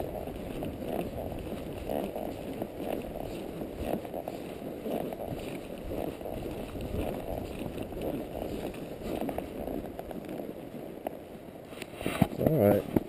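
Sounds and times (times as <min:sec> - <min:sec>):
hoofbeats on dirt: 0:00.0 - 0:11.3
saddle creaking: 0:00.0 - 0:13.0.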